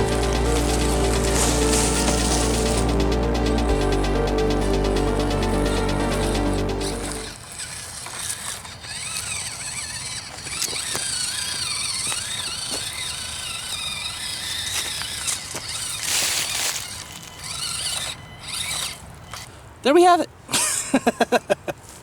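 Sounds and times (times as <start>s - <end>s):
short rush of noise: 0.0s - 7.4s
small electric motor whining: 0.0s - 19.5s.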